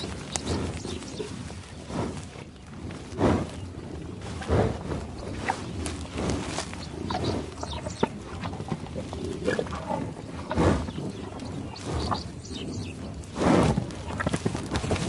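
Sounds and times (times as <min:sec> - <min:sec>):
animal calls: 0:06.4 - 0:13.0.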